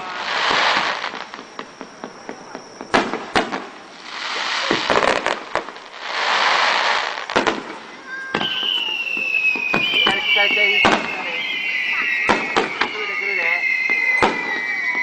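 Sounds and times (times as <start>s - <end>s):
whistling firework shell: 0.0s - 3.6s, 7.2s - 15.0s
fireworks bangs: 0.0s - 15.0s
fireworks hissing: 0.0s - 15.0s.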